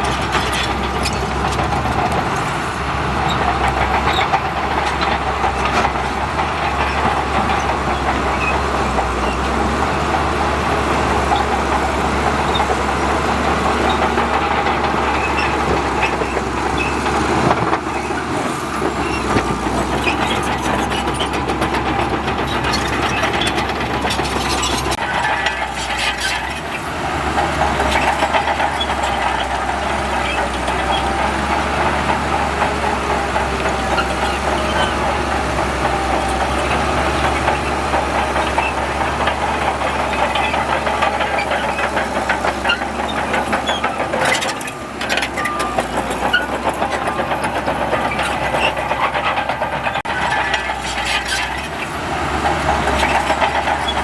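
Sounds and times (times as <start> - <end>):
heavy diesel machinery running: 0.0 - 54.0
metallic clanks and rattles: 11.2 - 54.0.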